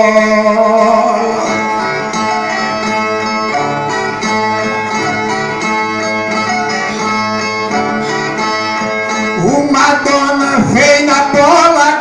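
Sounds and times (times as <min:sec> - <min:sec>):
plucked string instrument: 0:00.0 - 0:12.0.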